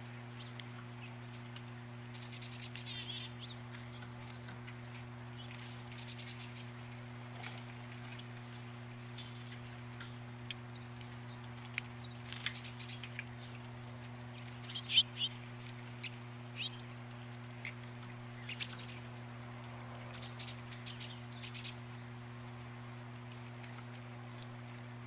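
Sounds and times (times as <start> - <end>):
small birds chirping: 0.0 - 24.8
low electrical hum: 0.0 - 25.0.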